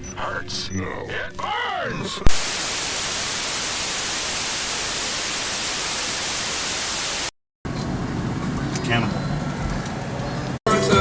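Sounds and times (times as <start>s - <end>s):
static hiss: 2.3s - 7.3s.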